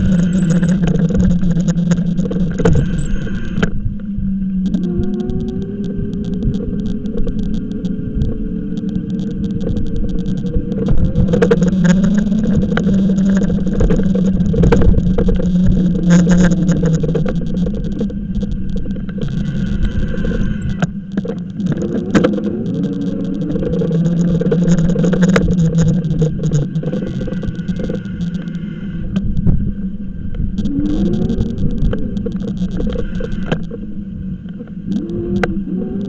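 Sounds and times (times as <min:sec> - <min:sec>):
e-bike motor drone: 0:00.0 - 0:36.0.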